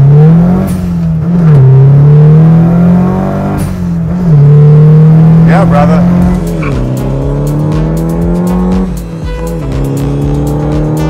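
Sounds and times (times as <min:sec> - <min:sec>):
car engine revving hard: 0:00.0 - 0:11.0.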